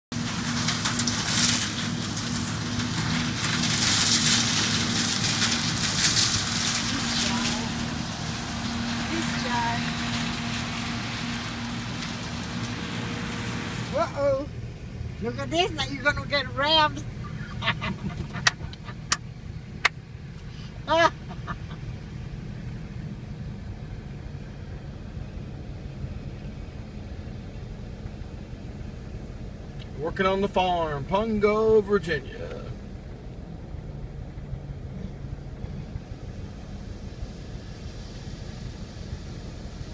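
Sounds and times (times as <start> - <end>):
engine humming: 0.0 - 39.9
rustling hiss: 0.2 - 14.5, 32.5 - 39.9.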